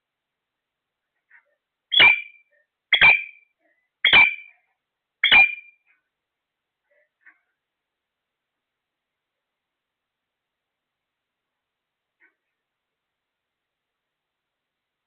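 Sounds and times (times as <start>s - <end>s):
parrot harsh calls: 1.9s - 3.4s, 4.0s - 4.6s.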